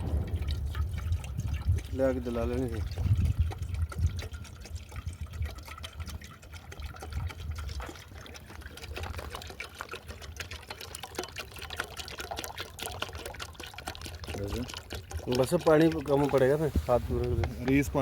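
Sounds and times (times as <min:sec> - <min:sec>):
small wet clicks and splashes: 0:00.0 - 0:18.0
water pouring and trickling: 0:00.0 - 0:18.0.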